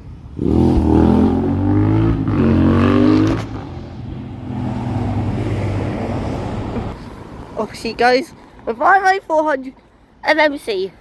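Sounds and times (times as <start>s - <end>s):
bus engine accelerating: 0.0s - 7.6s.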